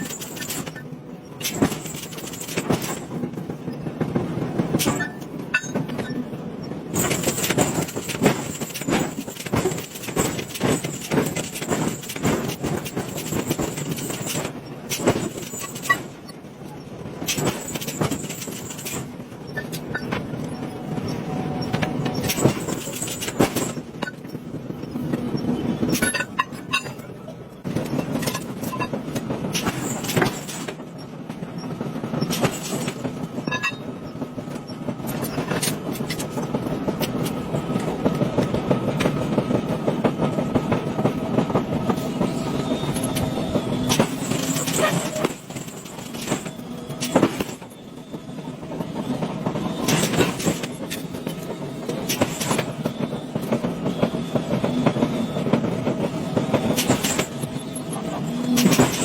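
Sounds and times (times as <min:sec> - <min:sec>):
sharp clanks and knocks: 0:01.4 - 0:03.3, 0:04.7 - 0:06.2, 0:06.9 - 0:16.3, 0:17.2 - 0:20.3, 0:21.8 - 0:24.4, 0:25.9 - 0:30.9, 0:32.2 - 0:33.9, 0:43.0 - 0:47.8, 0:49.8 - 0:53.7, 0:56.4 - 0:57.5, 0:58.5 - 0:59.0.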